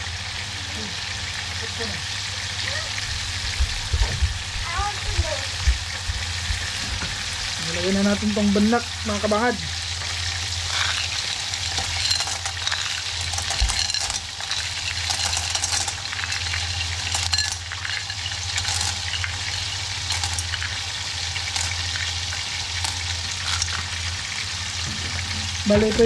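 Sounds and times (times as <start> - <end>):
fish sizzling in oil: 0.0 - 26.0
clam shells clinking: 10.7 - 23.9.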